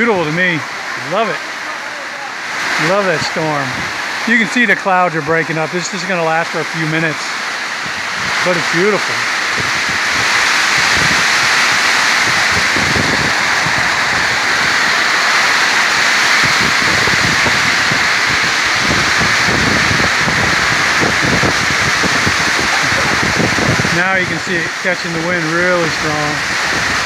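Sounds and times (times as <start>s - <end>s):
heavy rain pouring: 0.0s - 27.0s
wind gusting against microphone: 0.0s - 27.0s.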